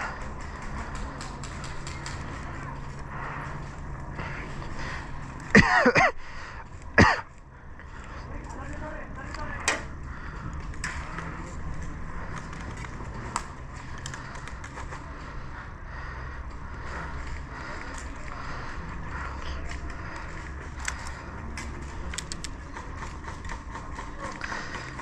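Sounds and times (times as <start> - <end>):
sharp clicks: 19.7 - 25.0.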